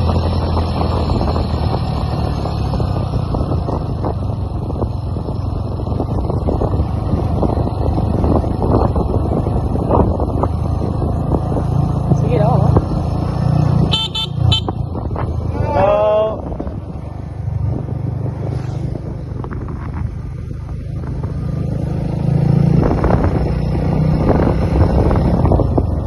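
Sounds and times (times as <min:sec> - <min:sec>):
motorcycle engine running: 0:00.0 - 0:18.1
wind noise: 0:00.0 - 0:26.0.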